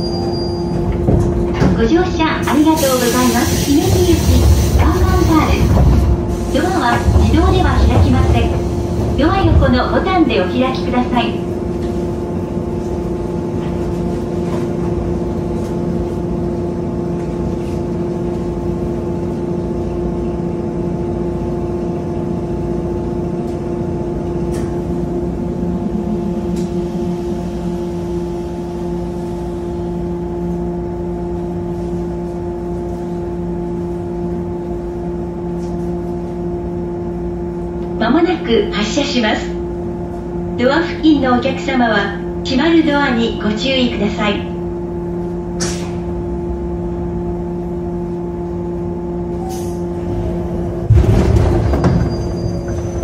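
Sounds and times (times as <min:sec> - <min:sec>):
electric train equipment humming: 0:00.0 - 0:53.0.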